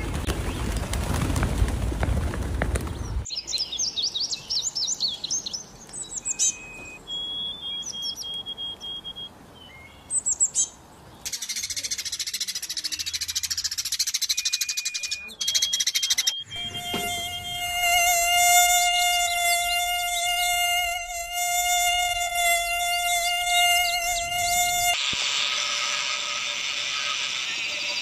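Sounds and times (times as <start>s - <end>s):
pigeons flapping wings: 0.0s - 3.3s
sparrows chattering: 2.8s - 20.4s, 22.7s - 24.9s
bird chirps and thin whistles: 3.3s - 16.8s.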